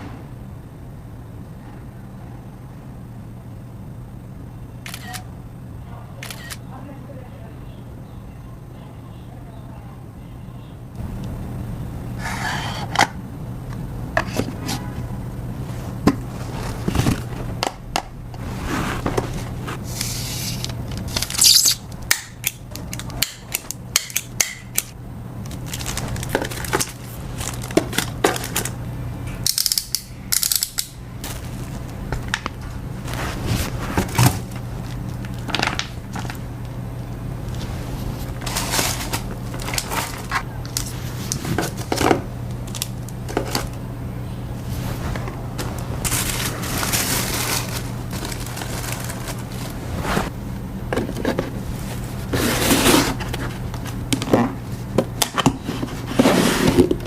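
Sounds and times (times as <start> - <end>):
steady low hum: 0.0 - 57.0
packaging rustling: 25.5 - 28.8, 37.5 - 42.0, 45.6 - 50.3.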